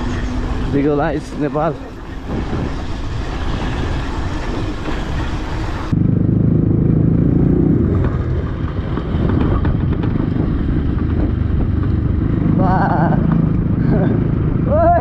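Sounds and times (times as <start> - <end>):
wind rushing over microphone: 0.0 - 15.0
dirt bike engine running: 5.9 - 15.0.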